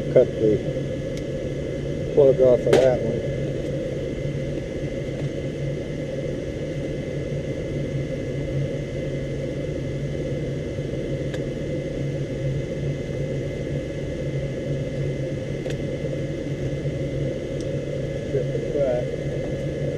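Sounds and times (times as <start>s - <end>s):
gas furnace hum and rumble: 0.0s - 19.9s.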